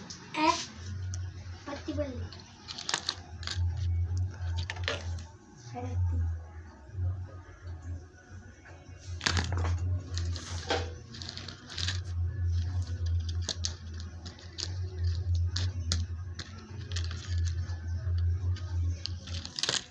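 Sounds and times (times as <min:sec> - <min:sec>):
plastic clicks and clatters: 0:02.2 - 0:05.3, 0:09.2 - 0:19.9.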